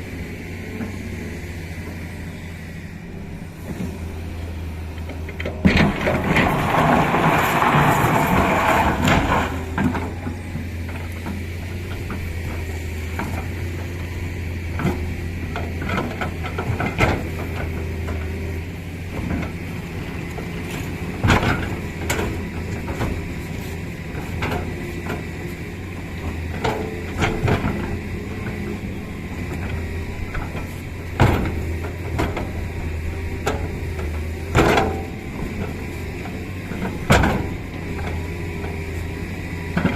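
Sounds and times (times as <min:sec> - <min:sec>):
diesel machinery engine hum: 0:00.0 - 0:39.9
metallic clanks and knocks: 0:33.4 - 0:38.2.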